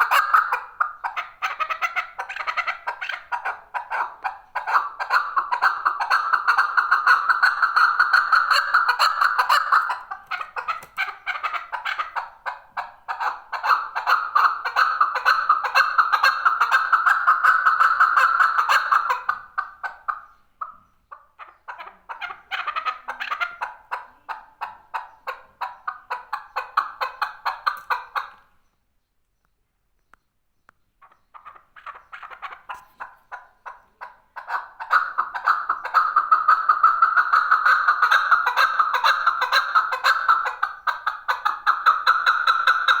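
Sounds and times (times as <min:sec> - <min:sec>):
partridge calling: 0:00.0 - 0:28.8, 0:30.7 - 0:43.0.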